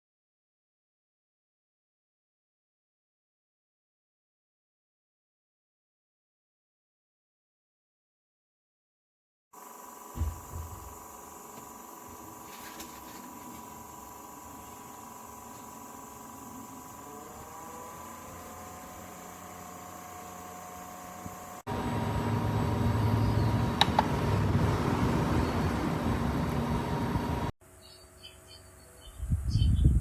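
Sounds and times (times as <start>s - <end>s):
small fan motor running: 9.6s - 30.0s
low hum: 10.2s - 27.5s.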